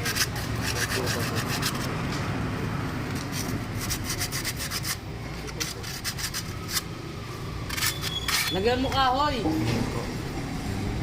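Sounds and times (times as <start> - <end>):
rapid scraping strokes: 0.0 - 2.0, 3.1 - 6.9.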